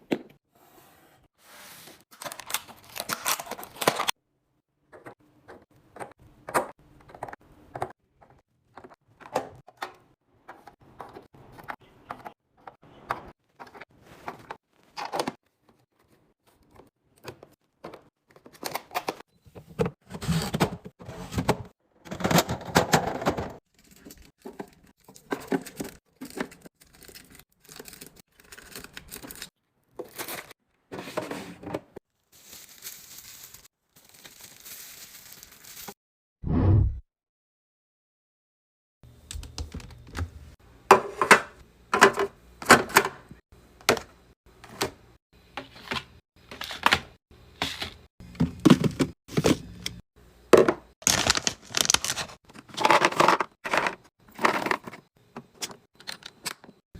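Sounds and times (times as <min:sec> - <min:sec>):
plastic packaging crinkling: 0:32.3 - 0:36.0, 0:51.0 - 0:53.2.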